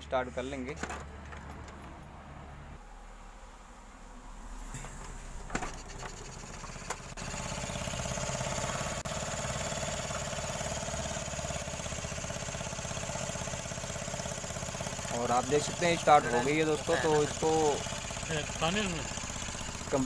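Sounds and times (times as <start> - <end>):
scooter engine idling: 4.8 - 20.0
scooter engine cranking: 5.5 - 20.0.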